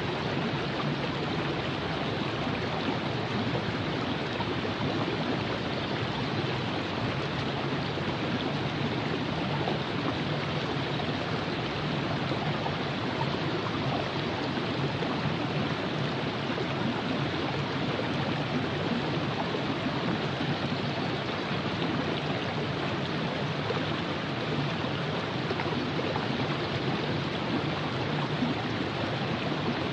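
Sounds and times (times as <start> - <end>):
river flowing over rocks: 0.0 - 29.9.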